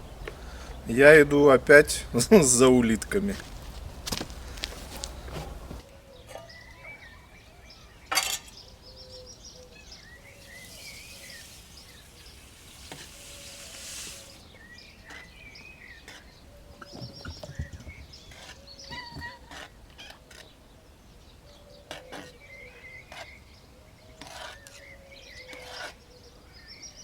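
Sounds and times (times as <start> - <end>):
soft rushing hiss: 0.0 - 5.8, 9.8 - 14.6
small birds chirping: 0.0 - 27.0.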